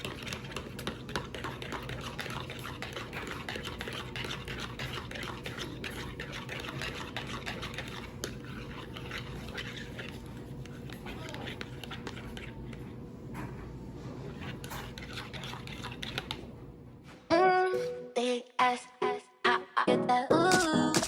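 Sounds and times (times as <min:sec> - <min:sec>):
utensil beating eggs in bowl: 0:00.0 - 0:16.8.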